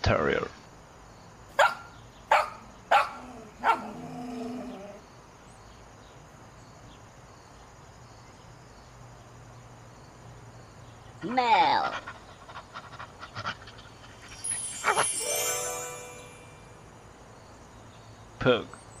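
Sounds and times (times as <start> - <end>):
dog barking: 1.6 - 4.0.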